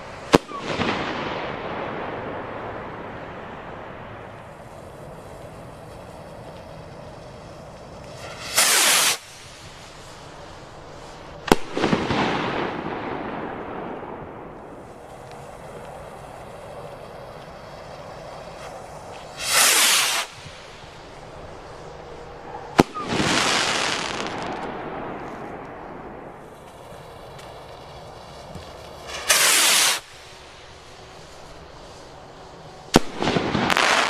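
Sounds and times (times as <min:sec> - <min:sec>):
firework crackle: 0:00.0 - 0:34.0
rocket whooshing: 0:00.0 - 0:34.0
firework bang: 0:00.3 - 0:02.7, 0:08.2 - 0:09.9, 0:11.4 - 0:14.9, 0:18.5 - 0:21.3, 0:22.7 - 0:26.4, 0:29.0 - 0:30.2, 0:32.9 - 0:34.0.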